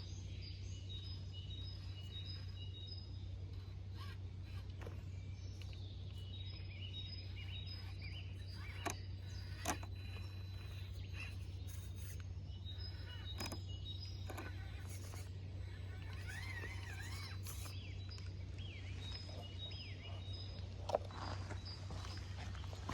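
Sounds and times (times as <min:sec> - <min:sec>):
birds chirping: 0:00.0 - 0:22.9
steady low hum: 0:00.0 - 0:22.9
sharp clicks: 0:07.5 - 0:18.3.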